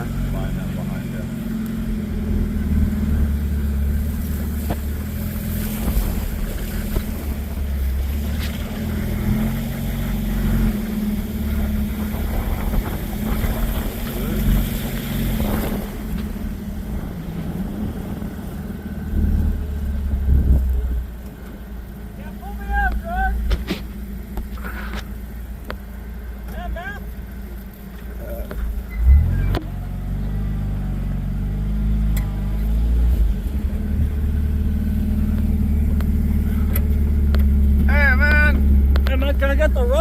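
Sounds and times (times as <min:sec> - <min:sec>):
vehicle engine droning: 0:00.0 - 0:40.0
wind noise on microphone: 0:11.7 - 0:18.4, 0:20.1 - 0:20.9.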